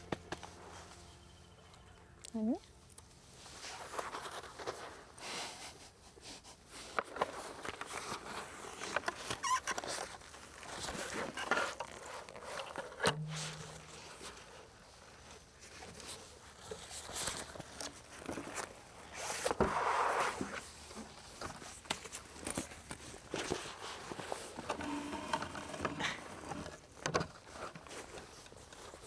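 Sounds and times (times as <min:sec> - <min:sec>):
rustling of things handled: 0:00.0 - 0:29.0
brief low hum: 0:13.1 - 0:14.2.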